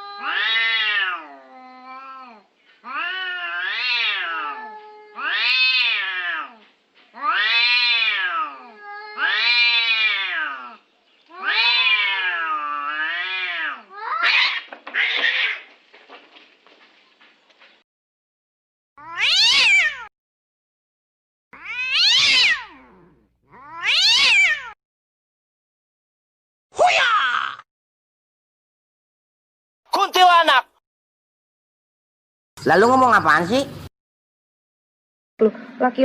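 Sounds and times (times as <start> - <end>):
cat meowing: 0.0 - 6.6, 7.2 - 15.7, 19.0 - 20.1, 21.6 - 24.8.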